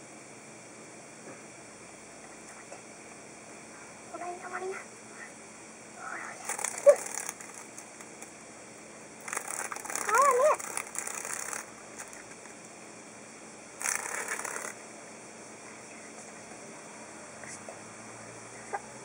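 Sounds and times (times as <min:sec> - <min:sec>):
cicada rasping buzzes: 0:01.6 - 0:19.0
short wavering cry: 0:06.1 - 0:07.4, 0:09.9 - 0:10.9.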